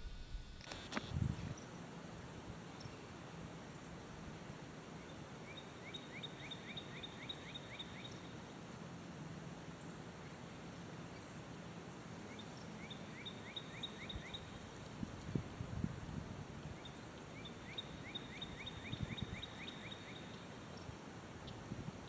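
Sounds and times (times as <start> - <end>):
steady low hum: 0.0 - 2.6
outdoor background noise: 0.0 - 22.0
small bird singing: 5.5 - 8.3, 12.3 - 14.6, 16.8 - 21.6.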